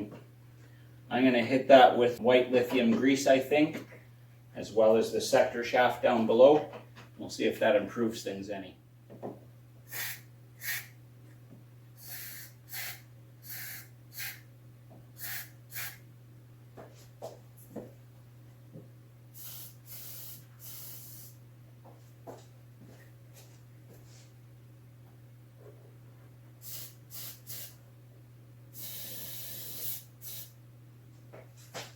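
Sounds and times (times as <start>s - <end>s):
steady low hum: 0.0s - 31.9s
aerosol can spraying: 9.9s - 10.9s, 12.0s - 14.4s, 15.2s - 16.0s, 19.4s - 21.4s, 26.6s - 27.8s, 28.8s - 30.6s.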